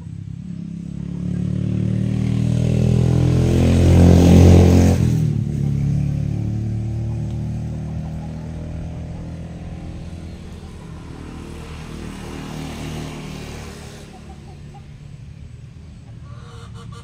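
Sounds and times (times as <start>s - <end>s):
vehicle engine passing: 0.0s - 17.0s.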